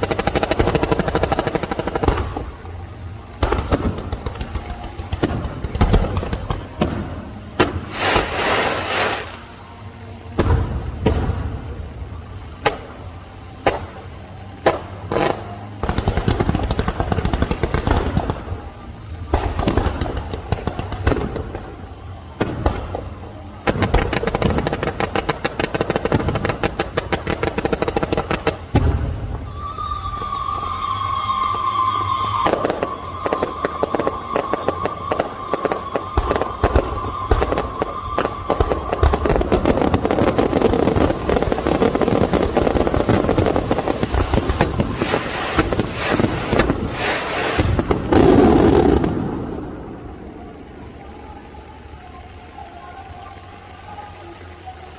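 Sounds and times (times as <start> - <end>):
fireworks crackling and banging: 0.0 - 54.9
firework whistle: 3.4 - 9.6, 14.6 - 51.3.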